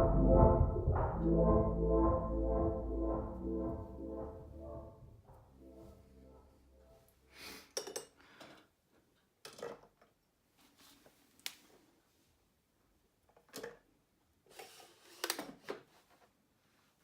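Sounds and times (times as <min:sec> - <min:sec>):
background music: 0:00.0 - 0:07.3.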